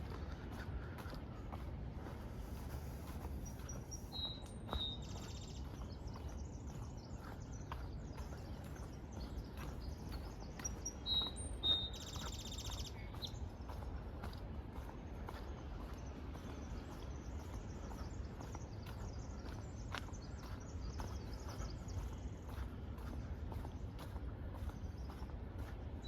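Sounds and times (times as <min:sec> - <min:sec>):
footsteps on a trail: 0:00.0 - 0:26.0
songbird singing buzzy trill: 0:03.3 - 0:13.6.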